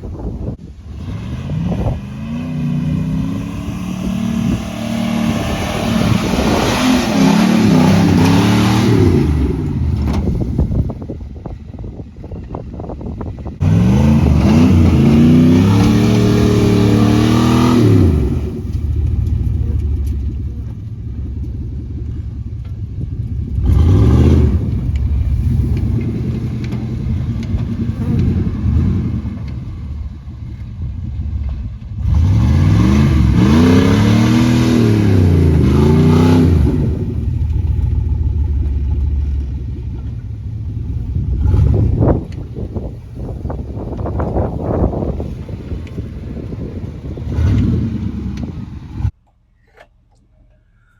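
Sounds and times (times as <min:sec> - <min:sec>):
truck engine revving: 0:00.1 - 0:11.1, 0:13.4 - 0:49.2
engine idling: 0:18.4 - 0:24.0, 0:37.1 - 0:47.2.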